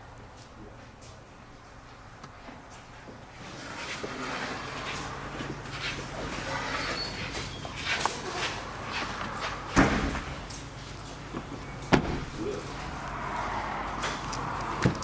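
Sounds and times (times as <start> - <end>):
car door slamming: 9.8 - 10.3, 11.9 - 12.6, 14.8 - 15.0.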